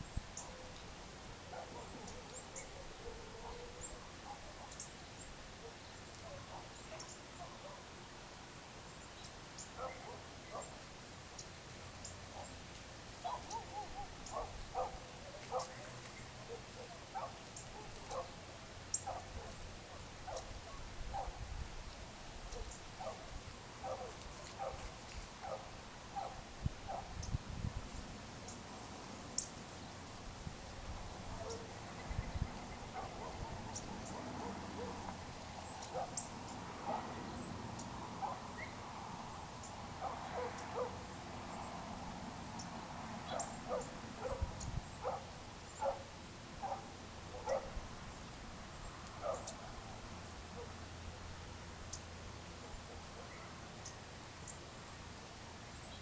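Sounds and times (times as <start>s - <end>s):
birds calling: 0.0s - 0.9s, 1.5s - 7.9s, 9.0s - 12.6s, 13.2s - 27.4s, 31.3s - 41.9s, 42.5s - 51.0s.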